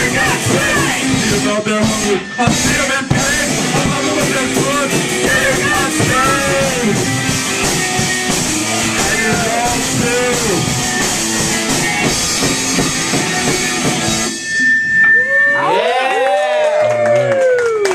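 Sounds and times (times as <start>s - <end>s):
punk rock band playing: 0.0s - 15.1s
steady high tone ringing: 14.1s - 16.3s.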